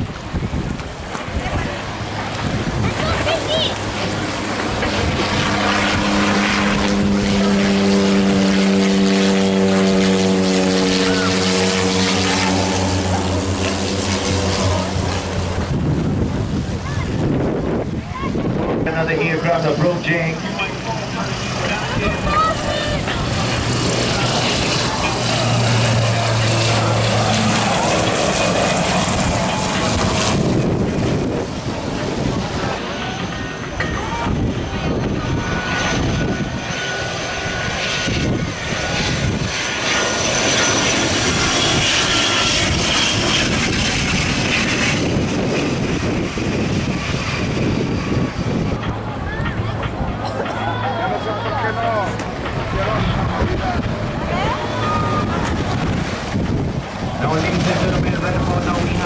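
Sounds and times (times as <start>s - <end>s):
low hum: 0.0s - 59.0s
propeller airliner drone: 0.0s - 59.0s.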